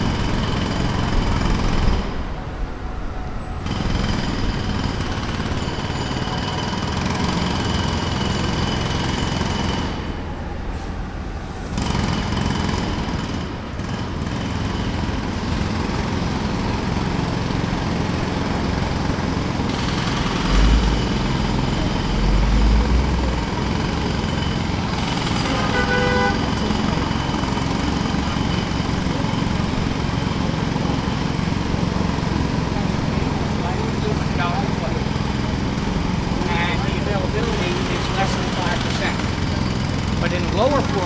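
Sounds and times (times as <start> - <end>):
jackhammer breaking pavement: 0.0 - 2.3, 3.6 - 10.3, 11.8 - 41.0
low engine rumble: 15.3 - 41.0.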